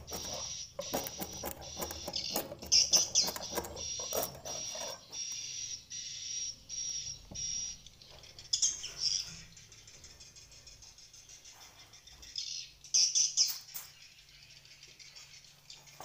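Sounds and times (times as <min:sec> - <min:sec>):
rapid clicking: 0:00.0 - 0:05.4
swiftlets chirping: 0:00.0 - 0:05.7.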